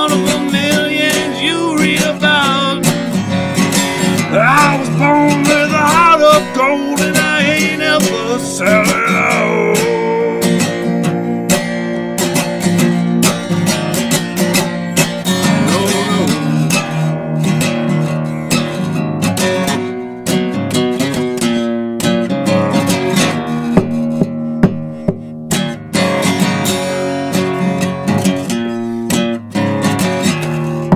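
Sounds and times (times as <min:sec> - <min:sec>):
acoustic guitar strumming: 0:00.0 - 0:30.9
sliding lead melody: 0:01.5 - 0:20.2.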